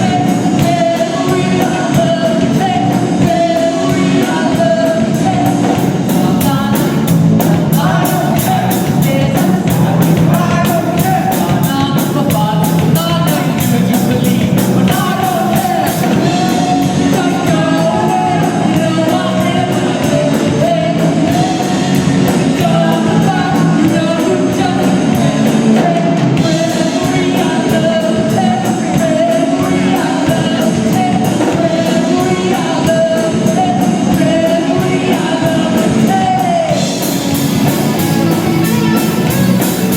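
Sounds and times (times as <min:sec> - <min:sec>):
lead singer singing: 0:00.0 - 0:39.9
rock band playing: 0:00.0 - 0:39.9.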